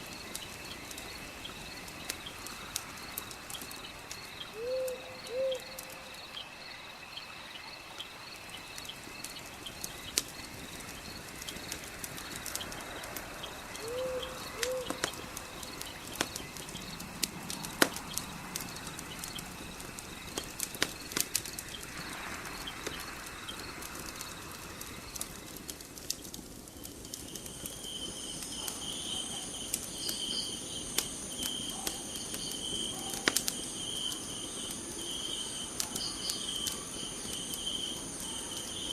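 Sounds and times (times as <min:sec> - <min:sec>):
crickets chirping: 0:00.0 - 0:38.9
wood fire crackling: 0:00.0 - 0:38.9
high insect trill: 0:26.7 - 0:38.9.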